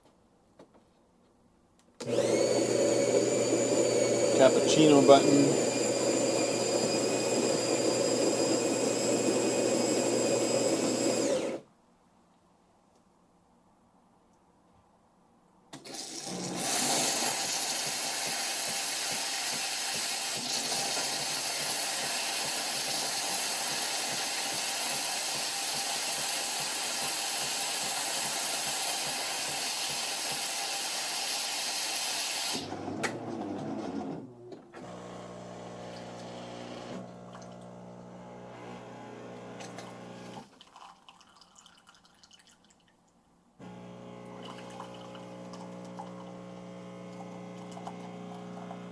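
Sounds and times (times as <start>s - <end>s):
coffee machine hissing: 2.0s - 11.6s, 15.8s - 34.2s, 34.8s - 40.4s, 43.6s - 48.9s
water pump humming: 2.0s - 11.6s, 15.9s - 40.6s, 43.6s - 48.9s.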